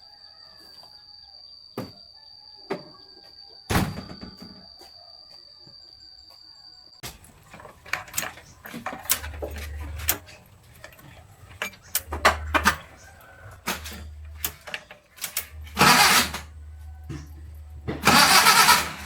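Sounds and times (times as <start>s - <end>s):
clicks and knocks: 7.0s - 18.3s
truck engine cranking: 7.0s - 19.0s.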